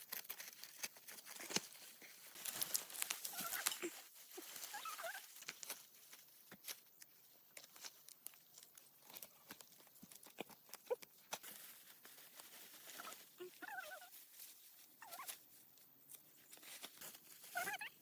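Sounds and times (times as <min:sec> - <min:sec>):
faint clicks and rustling: 0:00.0 - 0:17.8.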